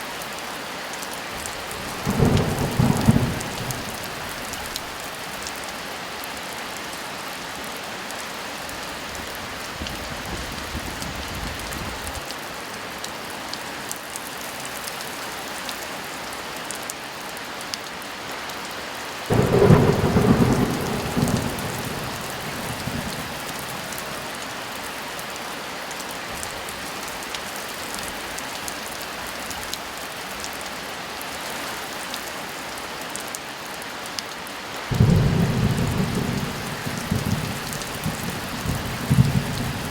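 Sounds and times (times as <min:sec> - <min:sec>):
heavy rain falling: 0:00.1 - 0:16.8, 0:18.1 - 0:39.9
thunder rumbling: 0:01.8 - 0:05.0, 0:19.3 - 0:24.6, 0:34.9 - 0:39.9.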